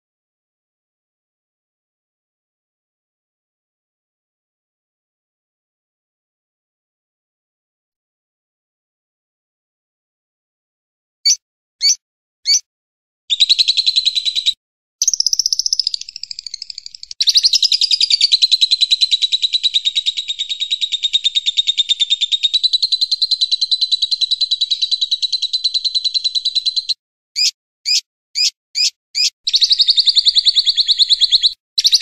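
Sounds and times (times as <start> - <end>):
sharp bird chirps: 11.2 - 12.7, 13.3 - 32.0
songbird trilling: 11.2 - 12.7, 13.3 - 32.0.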